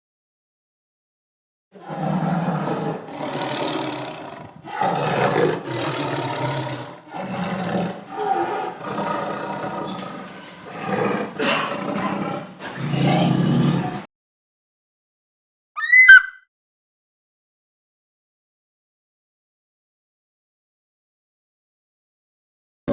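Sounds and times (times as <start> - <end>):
large animal calling: 15.8 - 16.4.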